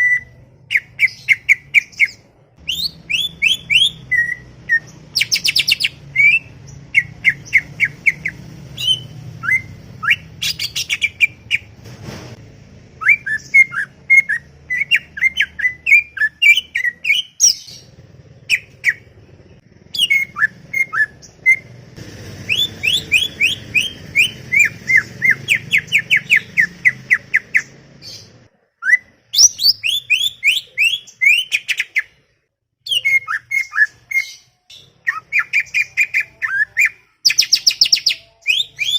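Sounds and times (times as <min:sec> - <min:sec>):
bird singing chirps and trills: 0:00.0 - 0:11.4, 0:13.0 - 0:21.7, 0:22.5 - 0:32.1.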